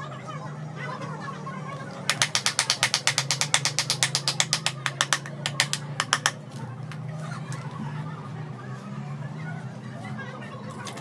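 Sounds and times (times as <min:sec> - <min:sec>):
rapid mechanical clicks: 0:02.1 - 0:06.4.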